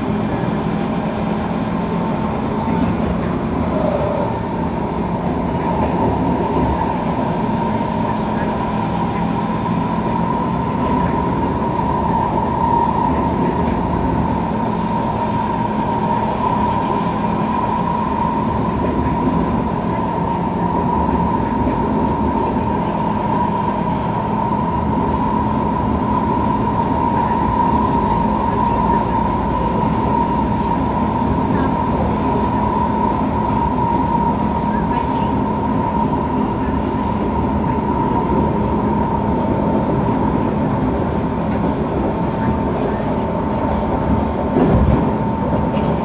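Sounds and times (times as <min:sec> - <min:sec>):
train rolling rumble: 0:00.0 - 0:46.0.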